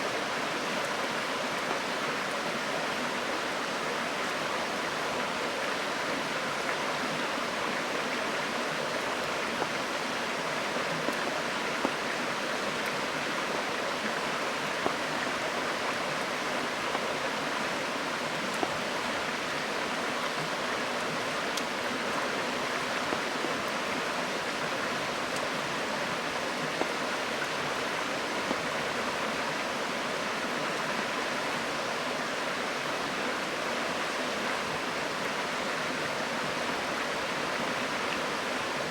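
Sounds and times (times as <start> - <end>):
river water rushing: 0.0 - 38.9
campfire pops and crackles: 18.5 - 18.8.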